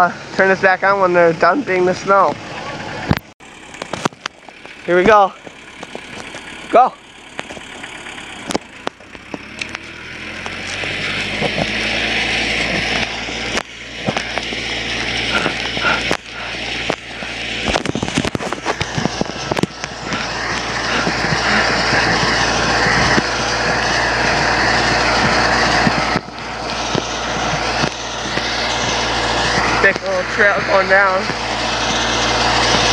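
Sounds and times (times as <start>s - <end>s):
tractor engine drone: 0.0s - 32.9s.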